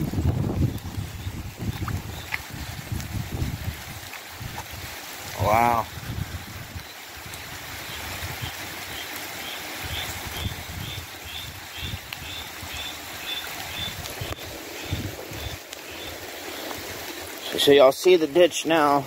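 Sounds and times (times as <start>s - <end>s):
wind buffeting microphone: 0.0s - 9.0s, 9.8s - 12.9s, 13.6s - 16.2s
steady rain: 0.0s - 19.0s.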